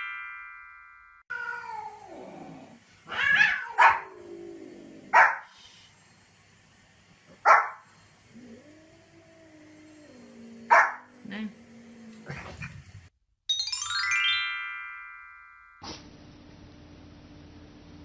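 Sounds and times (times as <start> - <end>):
puppy barking: 3.2 - 4.1, 5.1 - 5.5, 7.4 - 7.8, 10.7 - 11.1.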